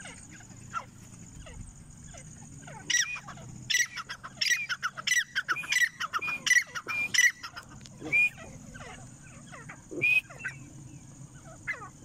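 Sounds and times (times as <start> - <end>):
bird calling harsh high notes: 2.8 - 10.7.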